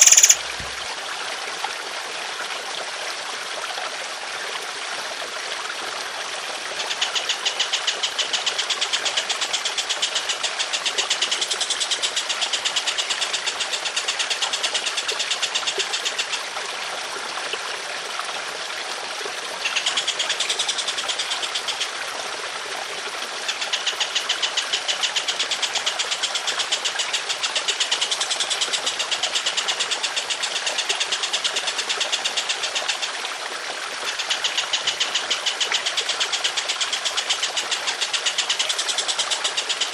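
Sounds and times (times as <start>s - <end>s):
songbird rattling trills: 0.0s - 0.8s
trickling water: 0.0s - 39.9s.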